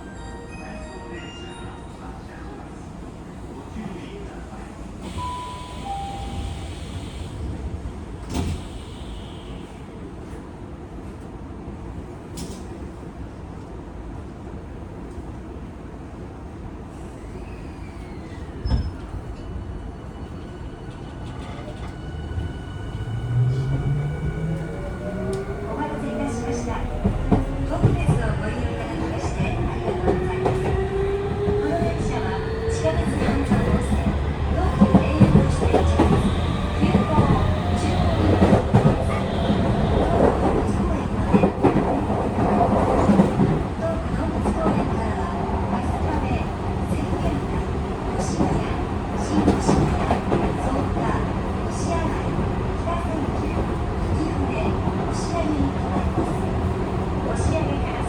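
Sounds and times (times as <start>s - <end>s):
train wheels rumbling on rail: 4.9s - 14.1s, 16.7s - 58.0s.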